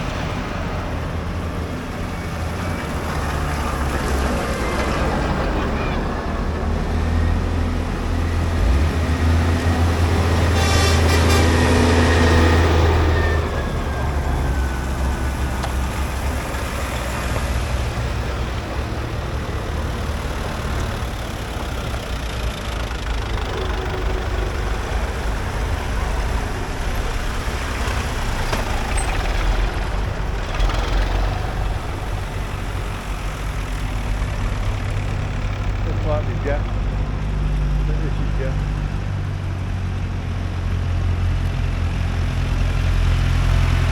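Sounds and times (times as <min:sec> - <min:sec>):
heavy diesel engine droning: 0:00.0 - 0:43.9.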